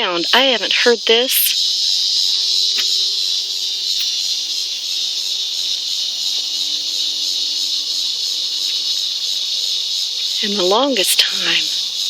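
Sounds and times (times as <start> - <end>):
cicadas buzzing: 0.0 - 12.0.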